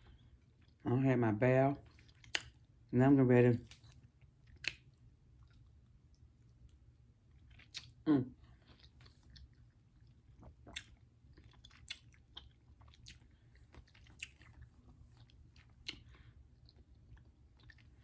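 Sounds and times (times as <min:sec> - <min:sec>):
close-up chewing with mouth clicks: 0:01.8 - 0:02.8, 0:03.6 - 0:18.0.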